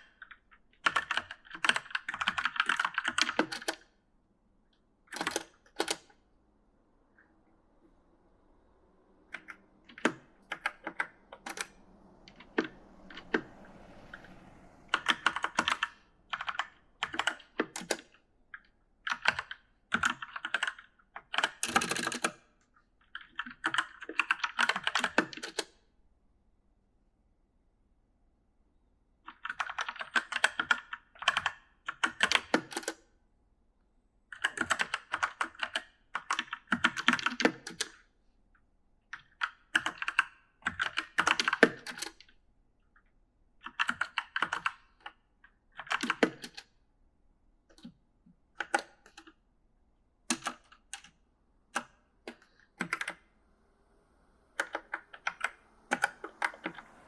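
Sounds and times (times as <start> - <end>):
mechanical keyboard key clicks: 21.3 - 22.4.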